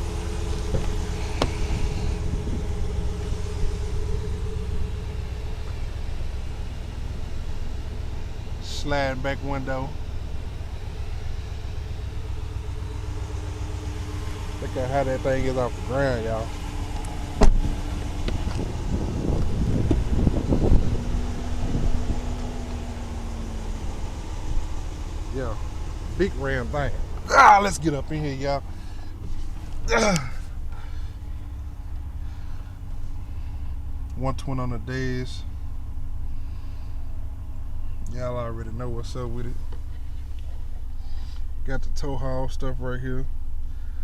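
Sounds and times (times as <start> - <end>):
truck engine idling: 0.0 - 44.0
wind buffeting microphone: 0.4 - 3.8, 16.5 - 24.7.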